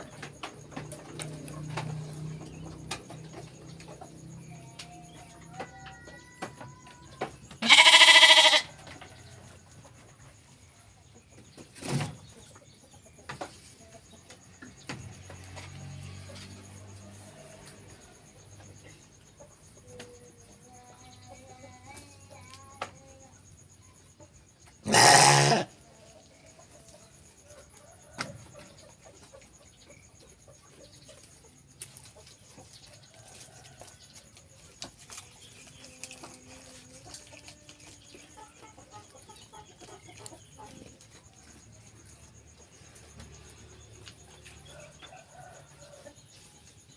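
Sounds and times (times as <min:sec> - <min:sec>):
sheep bleating: 0:07.6 - 0:08.7, 0:24.8 - 0:25.7.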